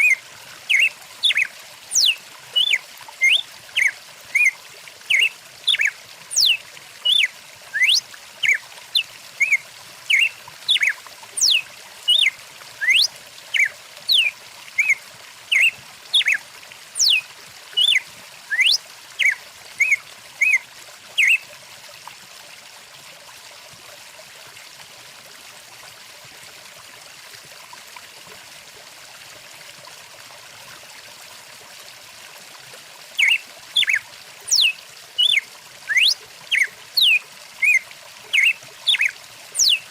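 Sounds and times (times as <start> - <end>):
songbirds chirping and whistling: 0.0 - 4.5, 5.1 - 8.6, 9.4 - 16.4, 17.0 - 17.2, 17.8 - 20.6, 33.2 - 39.8
flowing stream: 0.0 - 39.9.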